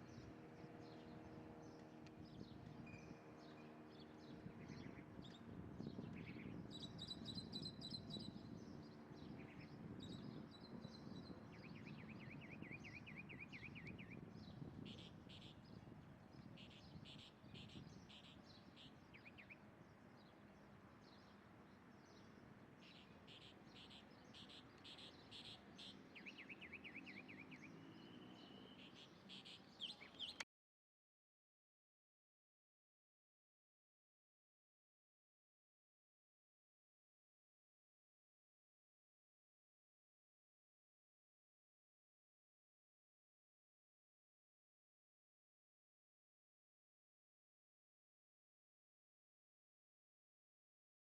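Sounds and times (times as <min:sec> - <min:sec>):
small birds chirping and trilling: 0:00.0 - 0:30.4.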